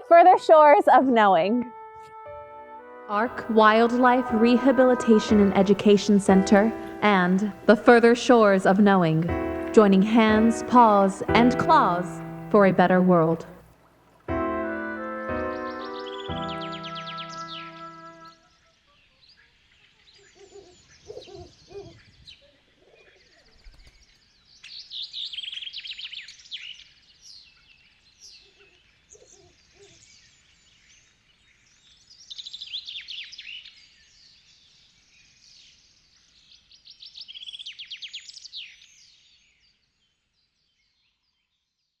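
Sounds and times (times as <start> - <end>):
songbirds chirping trills: 3.2 - 13.6, 14.8 - 41.8
lower-pitched bird calls: 15.4 - 24.0.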